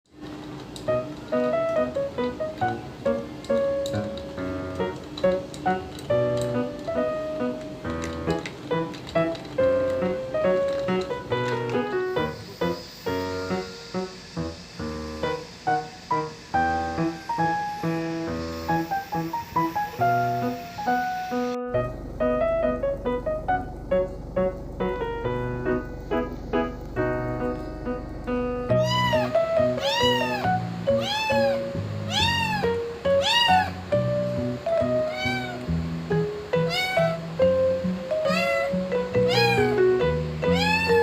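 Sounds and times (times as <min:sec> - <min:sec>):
piano music: 0:00.1 - 0:41.0
kitten meowing: 0:28.7 - 0:34.0, 0:34.8 - 0:35.7, 0:36.6 - 0:37.3, 0:38.1 - 0:41.0.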